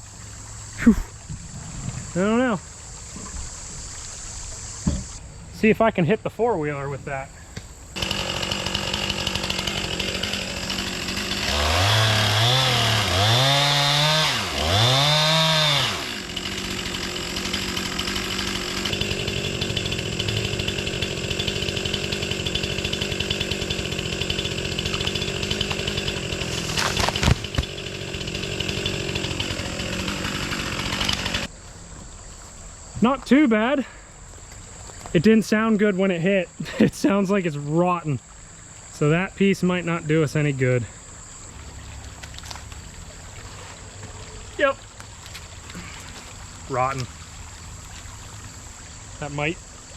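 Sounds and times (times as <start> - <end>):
chainsaw revving and cutting: 8.0 - 31.5
log thudding on ground: 24.9 - 27.8.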